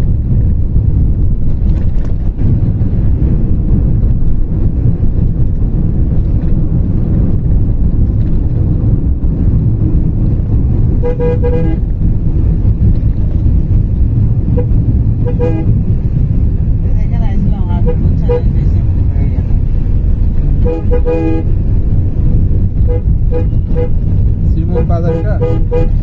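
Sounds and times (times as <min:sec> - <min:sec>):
low rumble of moving vehicle: 0:00.0 - 0:26.0
vehicle horn honking: 0:11.0 - 0:11.9, 0:14.5 - 0:15.8, 0:17.8 - 0:18.6, 0:20.6 - 0:21.6, 0:22.8 - 0:24.0, 0:24.7 - 0:26.0.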